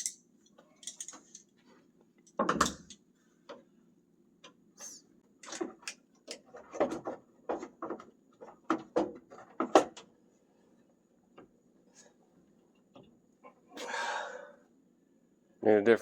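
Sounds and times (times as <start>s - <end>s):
screwdrivers clacking and clinking: 0.0s - 0.2s, 0.8s - 1.5s.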